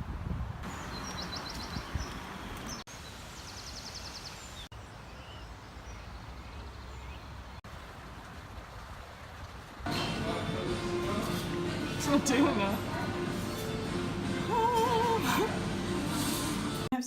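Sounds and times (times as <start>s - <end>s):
small birds trilling: 0.6s - 7.6s
low outdoor background noise: 0.6s - 16.2s.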